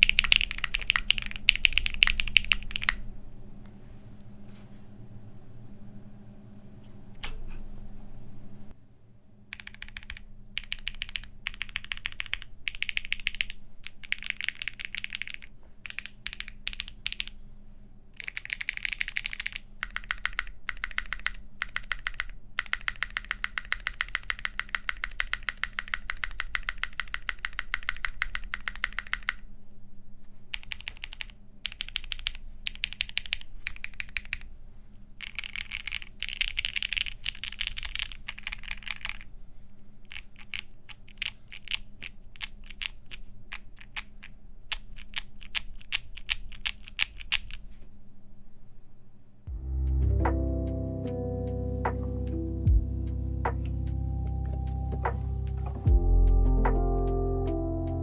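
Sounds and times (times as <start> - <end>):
mechanical keyboard typing: 0.0 - 3.0, 9.5 - 17.4, 18.2 - 29.4, 30.5 - 34.5, 35.2 - 39.3, 40.1 - 47.6.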